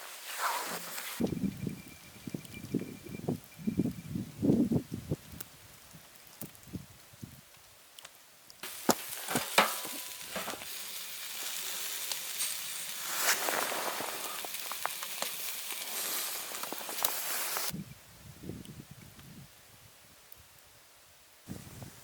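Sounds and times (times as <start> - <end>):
sharp pops and crackles: 0.3 - 17.8
food sizzling in a hot pan: 8.6 - 17.8.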